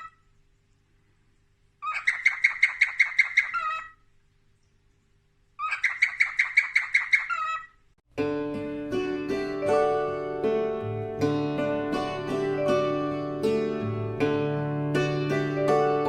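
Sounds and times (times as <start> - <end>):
parrot chirping rapidly: 1.8 - 4.0, 5.6 - 7.8
plucked-string music: 8.1 - 16.0.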